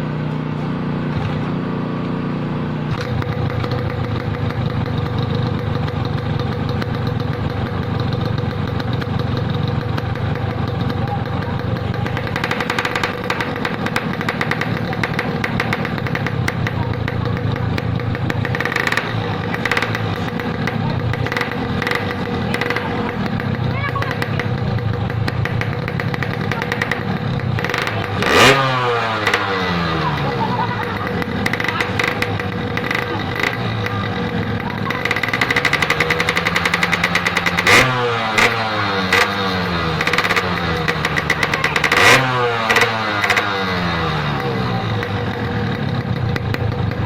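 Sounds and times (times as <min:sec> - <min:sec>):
two-stroke motorcycle engine crackle: 0:00.1 - 0:47.0.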